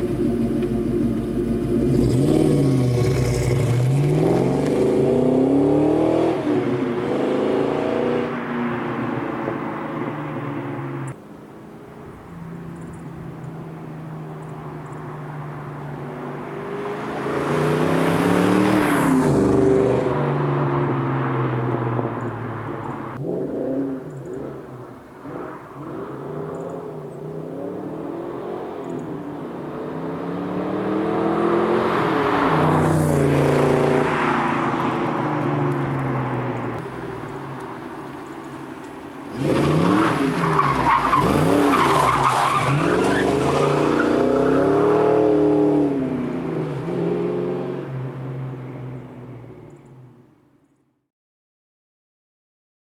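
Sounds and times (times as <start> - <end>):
car engine revving: 0.0 - 8.6, 15.6 - 48.9.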